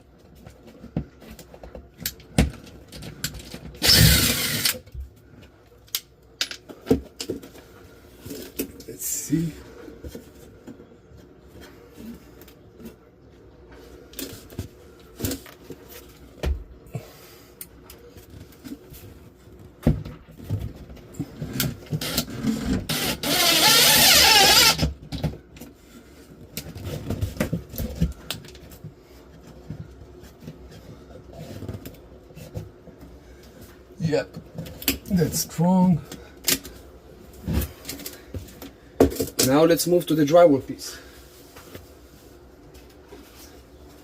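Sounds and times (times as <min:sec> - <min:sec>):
power drill driving screw into wood: 0:03.8 - 0:04.8, 0:22.9 - 0:24.9.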